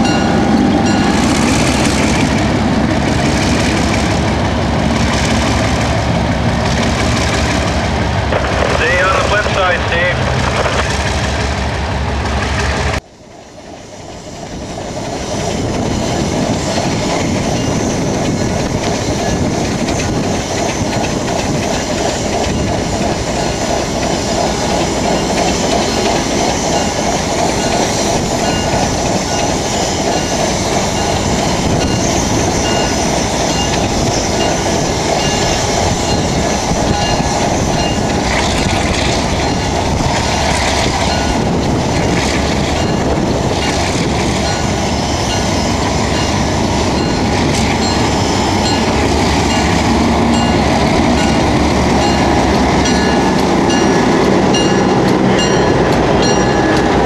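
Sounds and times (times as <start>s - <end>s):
train wheels rumbling on track: 0.0s - 57.0s
wheels clacking over rail joints: 15.0s - 57.0s.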